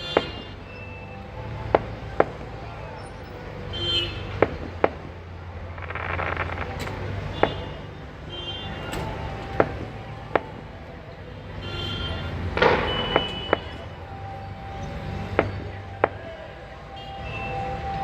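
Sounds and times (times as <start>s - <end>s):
vehicle horn toots: 0.0s - 1.3s, 2.2s - 4.7s, 5.9s - 10.6s, 11.5s - 18.0s
town traffic noise: 0.0s - 18.0s
fireworks bangs: 12.6s - 13.8s.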